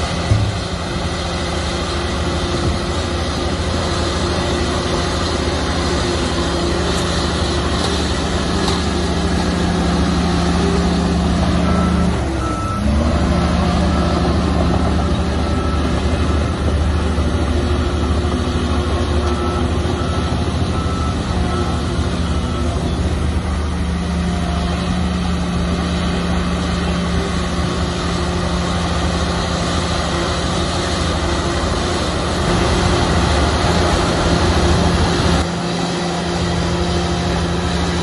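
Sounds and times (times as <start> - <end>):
diesel machinery engine: 0.0 - 38.0
reversing alarm beeping: 5.8 - 24.4.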